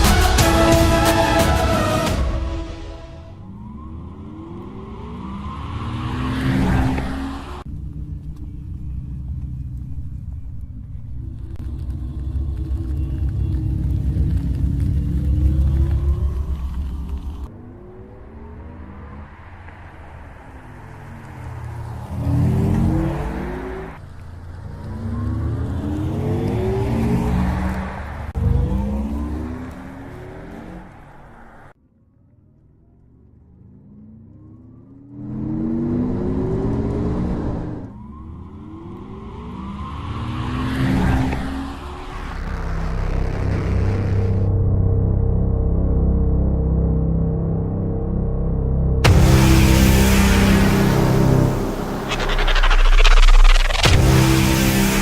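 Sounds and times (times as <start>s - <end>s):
car accelerating hard: 3.3s - 7.9s, 11.7s - 31.8s, 33.5s - 44.5s, 49.0s - 55.0s
low rumble: 7.6s - 18.9s, 41.8s - 55.0s
faint rising whine: 41.6s - 55.0s.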